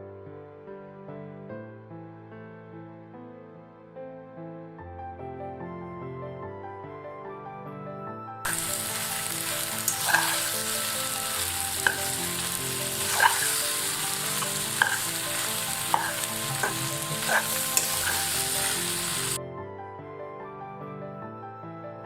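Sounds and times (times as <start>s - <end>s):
food sizzling in a frying pan: 8.5s - 19.4s
utensil clicking against pan: 9.8s - 10.7s, 11.8s - 19.4s.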